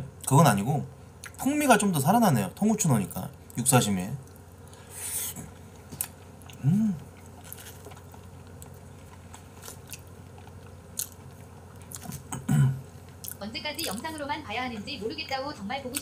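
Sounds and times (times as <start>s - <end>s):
man chewing wetly: 4.2s - 14.0s
man humming mm: 6.6s - 7.2s.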